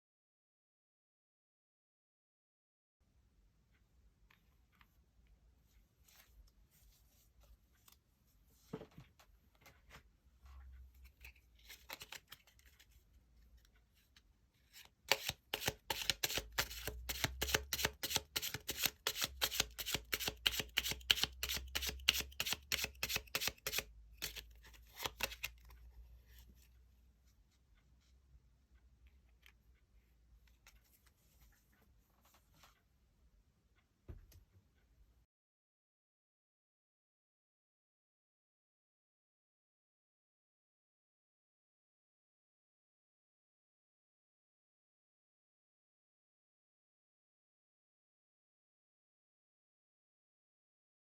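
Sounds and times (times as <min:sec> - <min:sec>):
soft card handling: 0:06.0 - 0:26.8
cards being shuffled: 0:11.1 - 0:13.0, 0:14.7 - 0:25.8.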